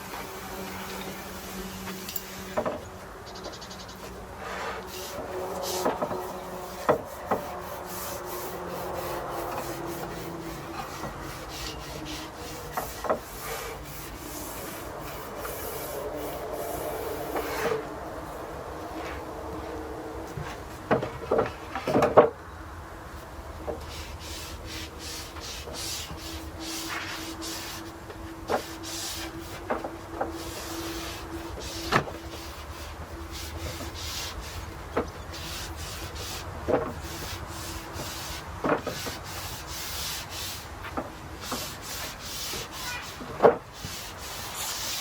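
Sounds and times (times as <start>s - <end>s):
paintbrush scratching on wood: 3.4s - 17.8s, 23.9s - 40.7s, 41.4s - 45.0s.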